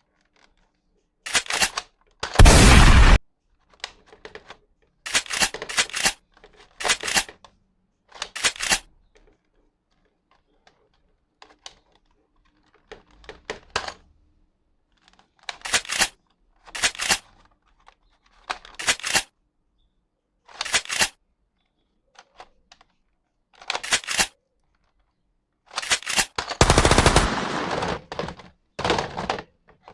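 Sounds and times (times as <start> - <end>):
toy gun gunfire bursts: 2.4 - 3.2, 25.8 - 28.1.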